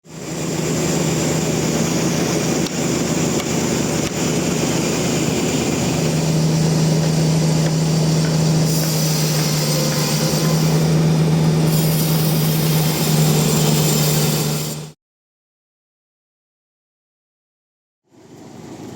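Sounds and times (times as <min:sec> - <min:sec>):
sawmill motor humming: 0:00.1 - 0:15.0.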